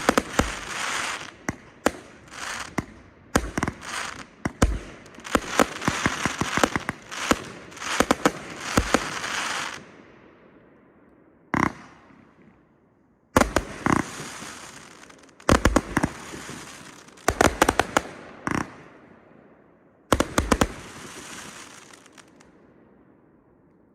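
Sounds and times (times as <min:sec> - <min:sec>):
firework bangs: 0:00.0 - 0:09.8
hissing crackling firework tail: 0:00.0 - 0:09.8, 0:13.4 - 0:17.7, 0:20.2 - 0:22.4.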